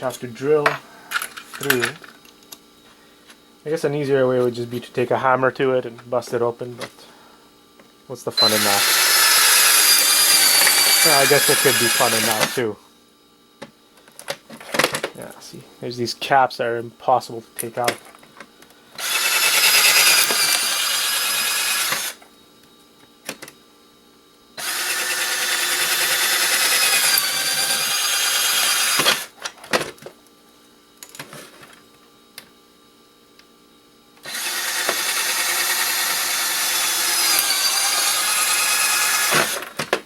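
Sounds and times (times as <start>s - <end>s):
power drill boring plastic: 8.4s - 12.6s, 19.0s - 22.2s, 24.6s - 29.4s, 34.2s - 39.8s.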